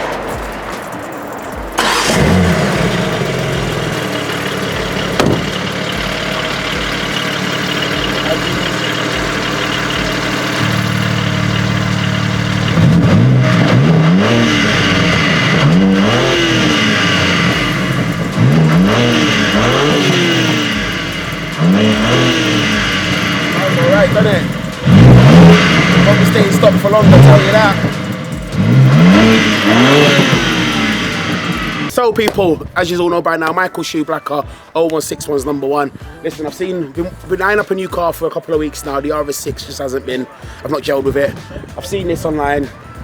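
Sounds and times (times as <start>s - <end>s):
car engine revving: 0.0s - 31.9s
car engine idling: 0.0s - 32.0s
car engine starting: 0.0s - 32.0s.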